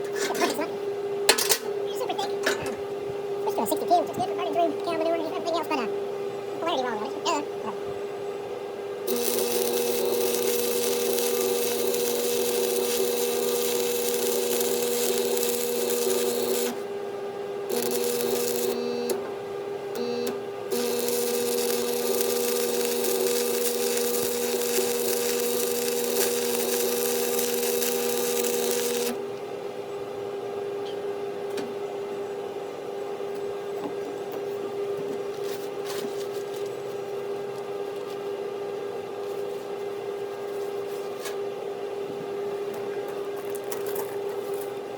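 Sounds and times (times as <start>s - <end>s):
steady hum: 0.0s - 29.4s
welder buzzing: 9.0s - 16.9s, 17.6s - 19.3s, 19.9s - 29.2s
welding arc crackling and hissing: 9.1s - 16.8s, 17.7s - 19.2s, 20.0s - 29.2s.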